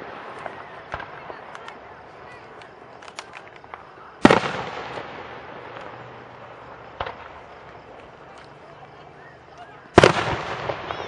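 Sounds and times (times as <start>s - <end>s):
firework crackles: 0.0s - 11.0s
firework bang: 3.7s - 7.6s, 10.0s - 11.0s.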